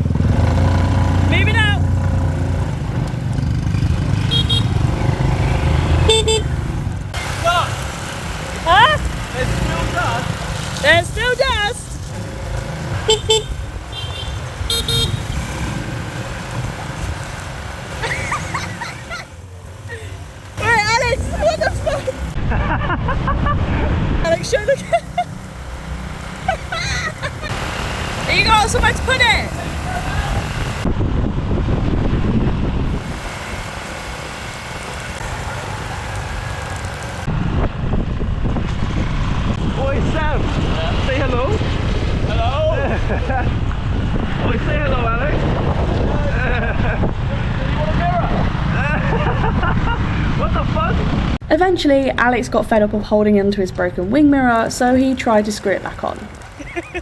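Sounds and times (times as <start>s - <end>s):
motorbike engines rumbling: 0.0s - 57.0s
road noise: 0.0s - 57.0s
motorbike horns beeping: 4.0s - 7.4s, 10.9s - 15.8s, 24.3s - 30.8s
wind buffeting microphone: 8.3s - 51.4s.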